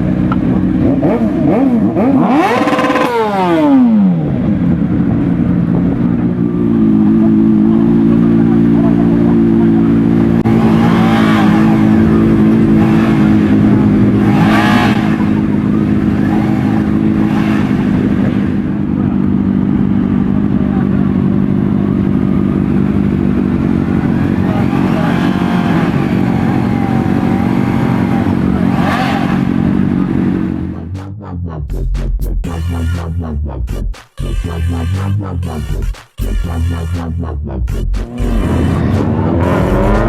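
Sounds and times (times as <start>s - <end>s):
vehicle engine idling: 3.1s - 28.7s.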